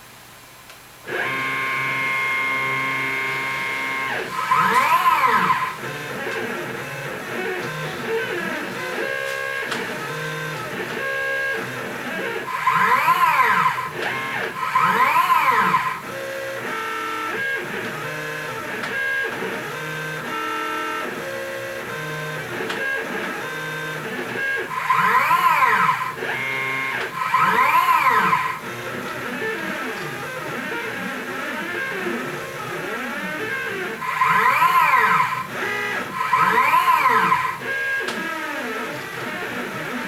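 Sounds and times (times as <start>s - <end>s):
stepper motors whining: 1.1s - 40.0s.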